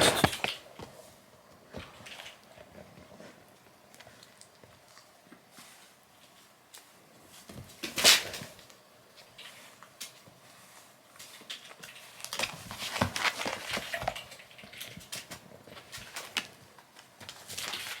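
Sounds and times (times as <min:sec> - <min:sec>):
kitten thumping and scuffling: 0:00.0 - 0:01.0.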